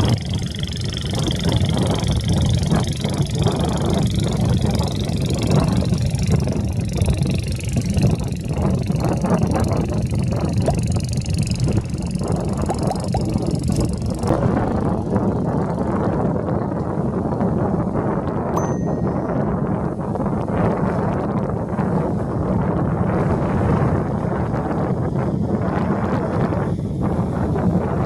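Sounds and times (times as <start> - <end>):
boat engines droning: 0.0 - 17.0
high engine whine: 0.0 - 28.0.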